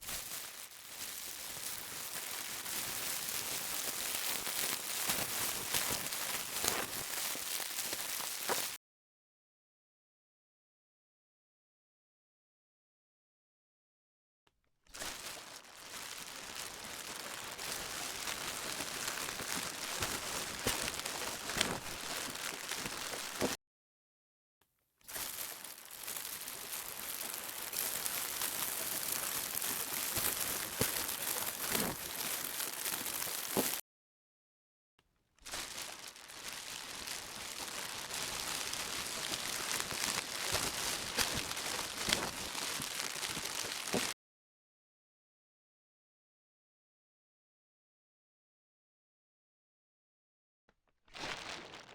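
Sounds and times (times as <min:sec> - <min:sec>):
plastic crinkling: 0:00.0 - 0:08.8, 0:15.0 - 0:23.6, 0:25.1 - 0:33.8, 0:35.4 - 0:44.2, 0:51.1 - 0:51.9.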